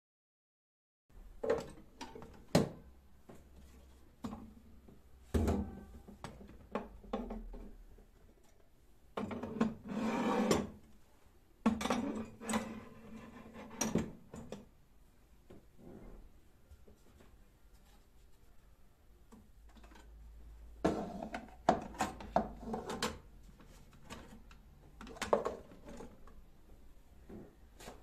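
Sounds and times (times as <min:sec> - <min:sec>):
objects knocking and clattering: 0:01.3 - 0:03.6, 0:20.8 - 0:26.4.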